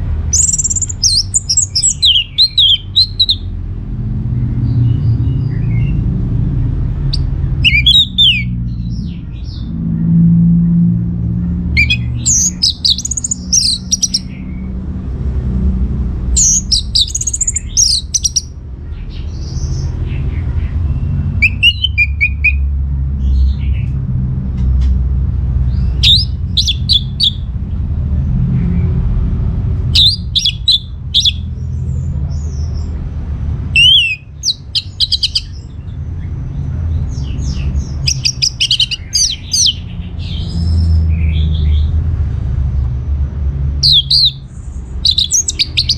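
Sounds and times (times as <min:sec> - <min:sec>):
thrush singing: 0:00.0 - 0:03.5, 0:06.9 - 0:09.9, 0:11.1 - 0:14.7, 0:16.2 - 0:18.6, 0:21.3 - 0:22.7, 0:25.9 - 0:27.5, 0:30.0 - 0:31.5, 0:33.7 - 0:35.9, 0:37.1 - 0:41.6, 0:43.8 - 0:45.9
steady low rumble: 0:00.0 - 0:45.9.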